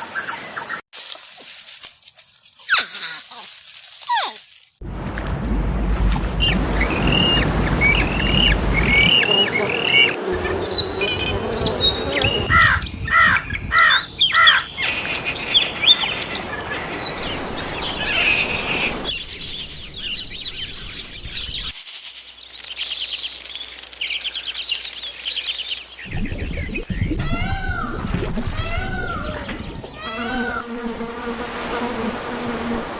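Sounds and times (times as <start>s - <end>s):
birds chirping: 6.3s - 21.8s, 22.4s - 30.8s
buzzy bird call: 6.4s - 12.8s.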